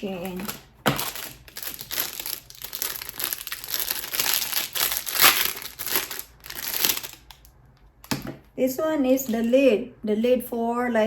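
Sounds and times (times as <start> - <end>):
packaging crinkling: 0.0 - 8.4.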